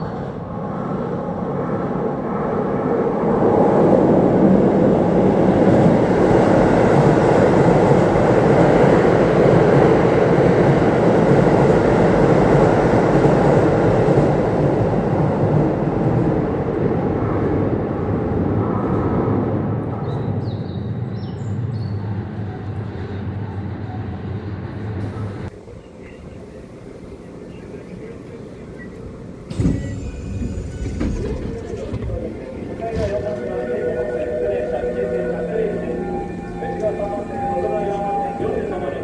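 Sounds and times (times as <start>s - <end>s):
electric train running past: 22.0s - 39.0s
wheels on rail: 26.0s - 39.0s.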